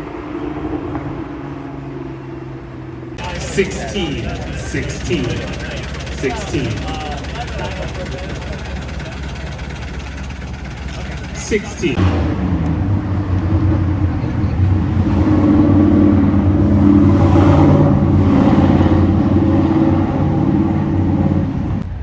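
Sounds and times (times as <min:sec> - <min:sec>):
car engine idling: 0:03.2 - 0:17.0.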